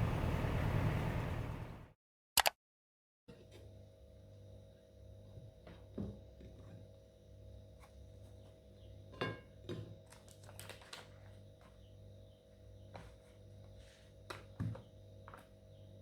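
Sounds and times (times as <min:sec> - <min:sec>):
steady low hum: 0:00.0 - 0:01.9.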